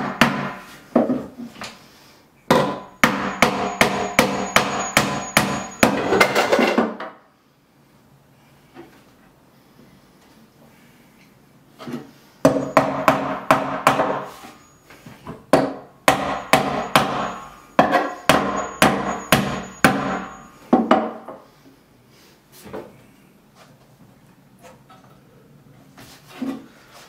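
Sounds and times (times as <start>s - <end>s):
ringing hammer blows: 2.5s - 6.8s, 12.4s - 21.2s.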